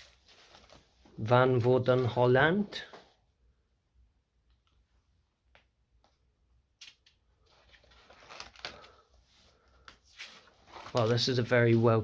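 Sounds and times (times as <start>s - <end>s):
paper rustling: 0.0s - 1.1s, 6.8s - 12.0s.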